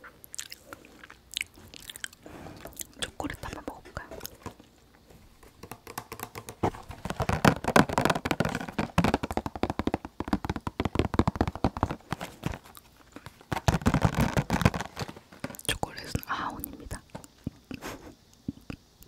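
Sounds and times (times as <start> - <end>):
wet mouth clicks and smacks: 0.2 - 3.7.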